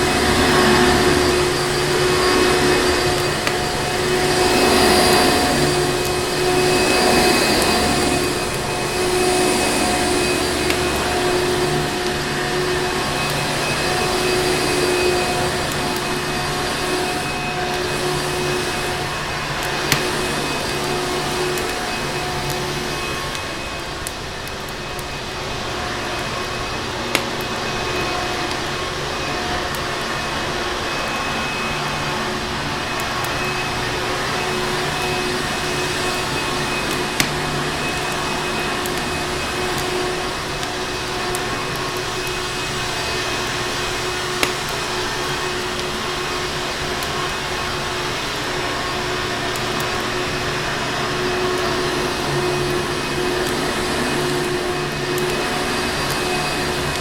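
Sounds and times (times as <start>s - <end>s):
fireplace fire popping: 0.0s - 30.2s, 32.7s - 47.8s
vacuum cleaner motor humming: 0.0s - 57.0s.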